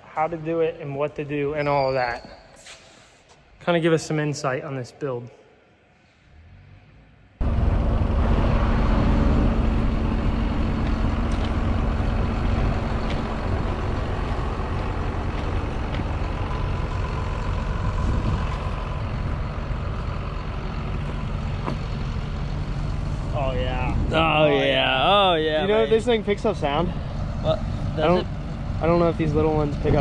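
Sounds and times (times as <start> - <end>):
heavy truck engine running: 7.4 - 30.0.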